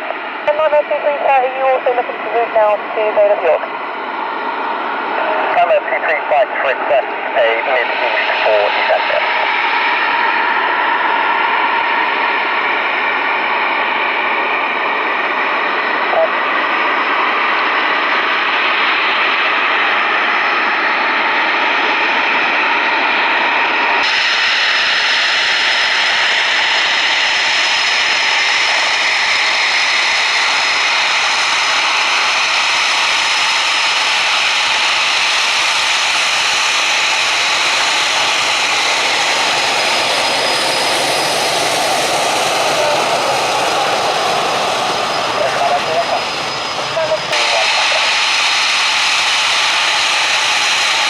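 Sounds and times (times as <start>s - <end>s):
jet engines running: 0.0s - 51.0s.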